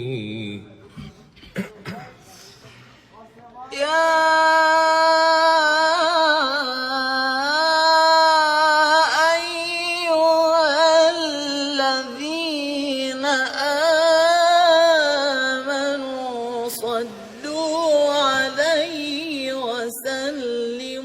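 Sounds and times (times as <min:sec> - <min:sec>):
man reciting melismatic chant: 0:00.0 - 0:21.0.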